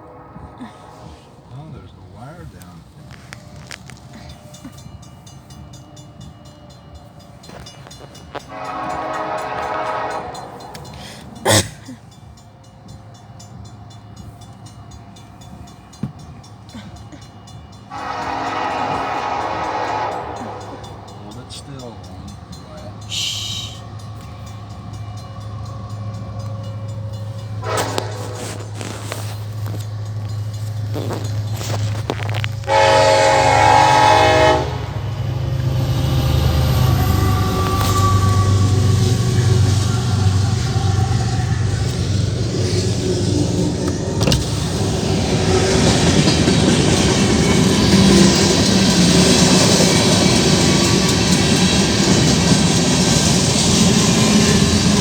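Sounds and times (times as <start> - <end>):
train horn blasts: 0.0 - 6.2, 7.4 - 11.8, 17.5 - 21.6, 26.4 - 29.9, 30.9 - 52.7
freight train rumbling: 0.0 - 55.0.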